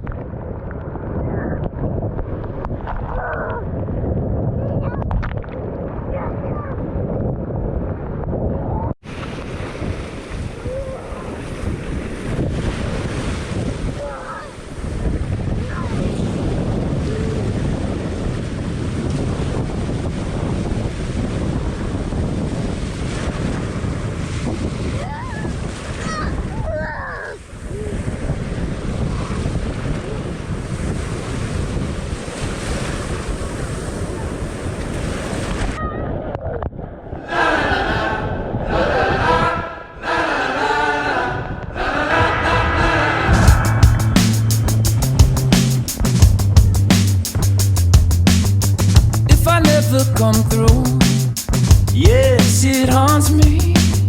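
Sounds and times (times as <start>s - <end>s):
wind buffeting microphone: 0.0s - 49.3s
ocean surf crashing: 9.0s - 35.8s, 37.2s - 47.2s.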